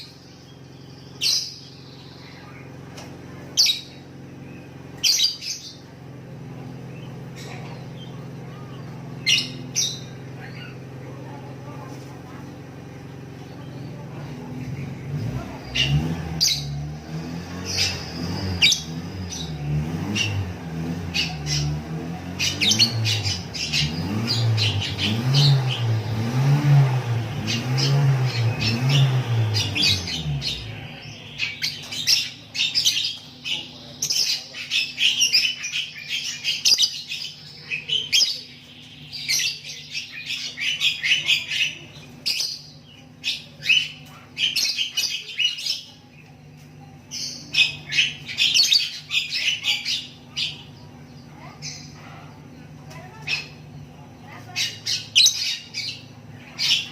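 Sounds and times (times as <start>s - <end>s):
lovebird chattering and squawking: 5.0s - 5.8s, 21.1s - 25.8s, 27.5s - 46.0s, 47.1s - 50.7s, 54.4s - 56.9s.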